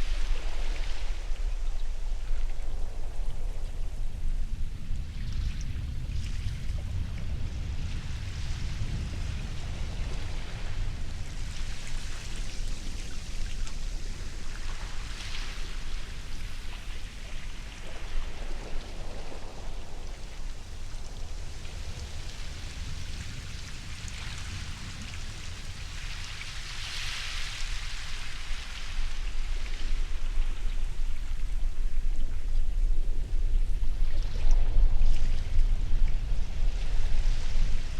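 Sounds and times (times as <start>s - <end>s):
waves breaking: 5.2s - 31.4s.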